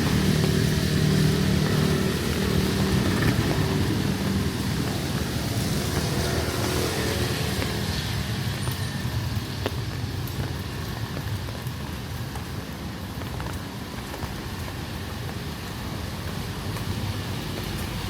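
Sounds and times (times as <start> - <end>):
vehicle engine running: 0.0 - 7.8
rain falling: 0.0 - 18.0.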